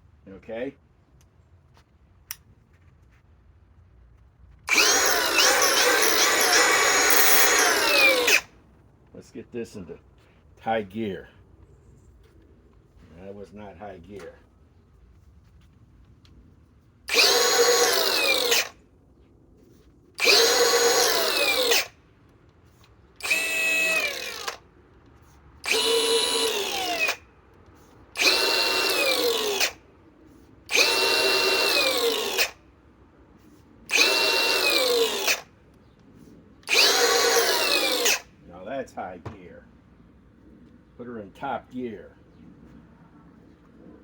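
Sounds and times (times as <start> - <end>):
angle grinder whining: 4.7 - 8.5, 17.1 - 18.8, 20.2 - 21.9, 23.2 - 24.6, 25.6 - 27.2, 28.2 - 29.8, 30.7 - 32.6, 33.9 - 35.5, 36.6 - 38.3.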